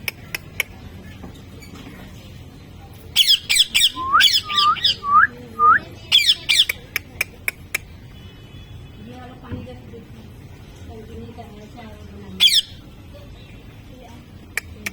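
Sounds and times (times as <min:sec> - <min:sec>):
parrot whistling: 0:03.2 - 0:06.8
parrot squawking: 0:03.2 - 0:06.9, 0:12.4 - 0:12.8
sharp clicks: 0:14.6 - 0:14.9.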